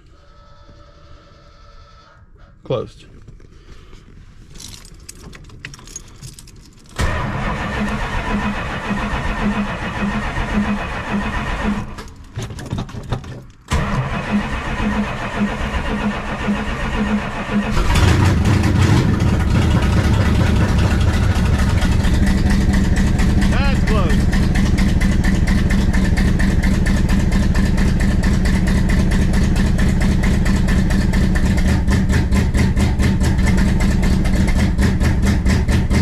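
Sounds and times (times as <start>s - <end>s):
starter motor cranking: 6.9s - 12.3s, 13.7s - 36.0s
car engine running: 13.7s - 36.0s.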